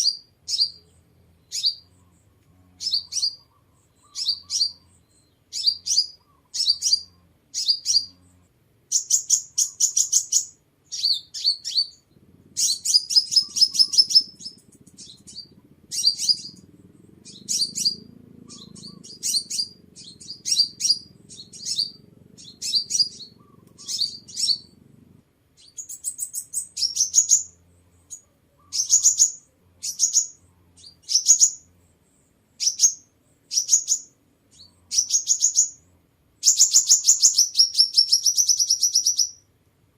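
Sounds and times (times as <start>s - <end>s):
bird chip notes and trills: 0.0s - 24.9s, 36.4s - 39.5s.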